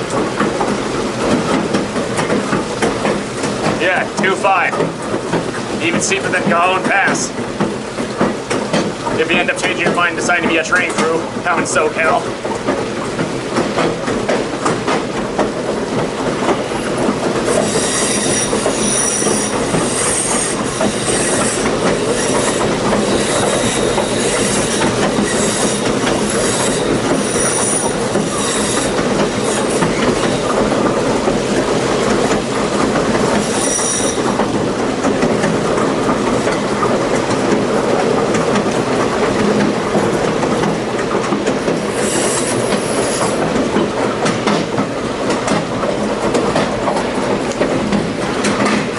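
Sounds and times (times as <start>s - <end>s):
train cars rolling on rails: 0.0s - 48.9s
high-pitched wheel squeal: 17.6s - 28.9s, 33.4s - 34.3s, 41.9s - 43.4s.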